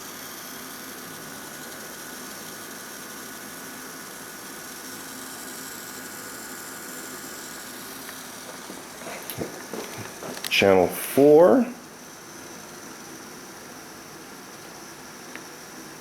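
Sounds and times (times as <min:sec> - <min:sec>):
steady hiss: 0:05.0 - 0:16.0
faint hum: 0:07.8 - 0:12.2.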